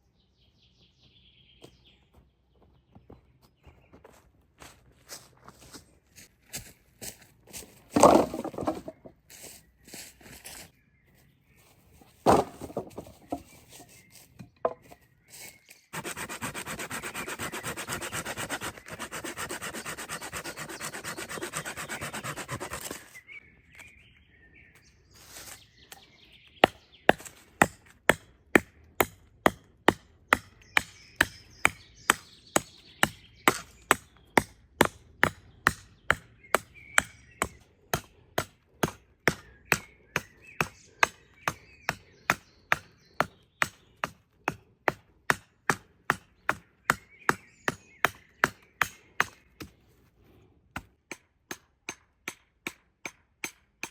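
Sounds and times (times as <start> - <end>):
sharp strikes on wood: 8.0 - 9.1, 12.2 - 13.5
rasping through wood: 15.9 - 23.1.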